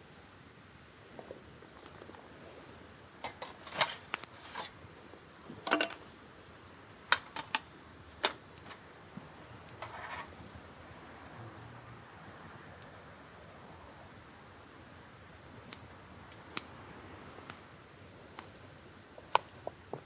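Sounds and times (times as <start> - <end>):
short rustle: 3.5 - 4.8
objects clinking and knocking: 5.7 - 6.0.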